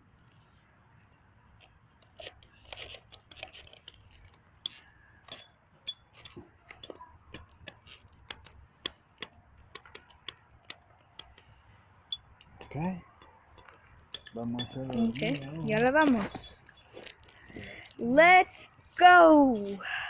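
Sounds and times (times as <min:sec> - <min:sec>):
small clicks and taps: 0:06.7 - 0:11.5.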